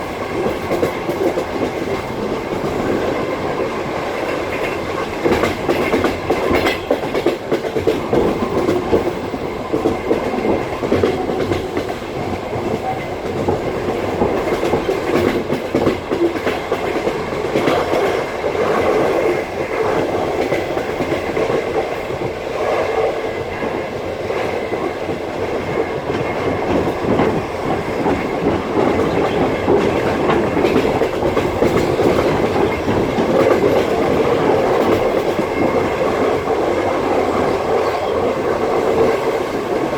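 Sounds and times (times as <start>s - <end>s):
train running gear rumble: 0.0s - 39.9s
train wheels clattering over rail joints: 0.0s - 39.9s.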